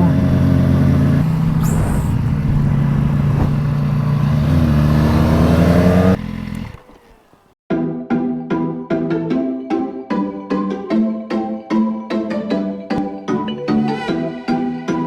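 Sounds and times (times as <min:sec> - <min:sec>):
motorcycle engine running: 0:00.0 - 0:07.6
wind and road noise: 0:00.0 - 0:07.6.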